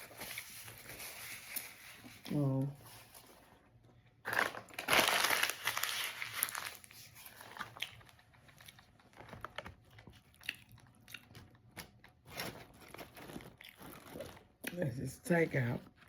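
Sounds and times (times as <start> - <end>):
chewing with wet mouth clicks: 10.2 - 12.0.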